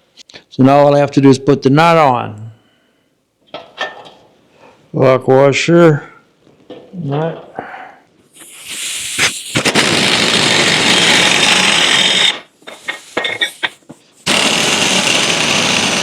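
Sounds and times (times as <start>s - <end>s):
power wrench running: 9.5s - 16.0s.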